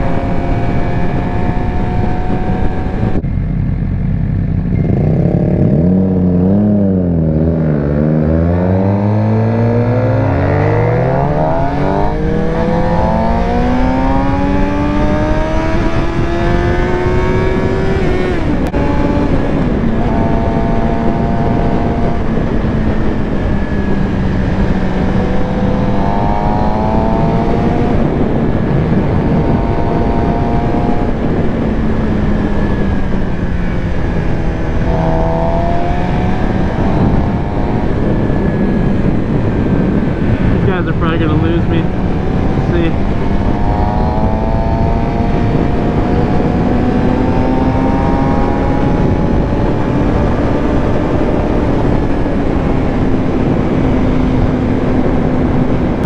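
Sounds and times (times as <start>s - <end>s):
motorcycle engine revving: 0.0s - 56.0s
wind rush: 0.0s - 56.0s.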